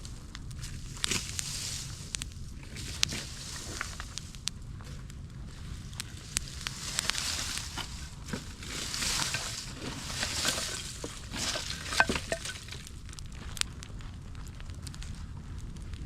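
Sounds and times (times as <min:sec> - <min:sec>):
hissing sizzle: 0:00.0 - 0:04.8, 0:05.5 - 0:13.2
steady low rumble: 0:00.0 - 0:16.0
wood crackling and popping: 0:00.0 - 0:16.0.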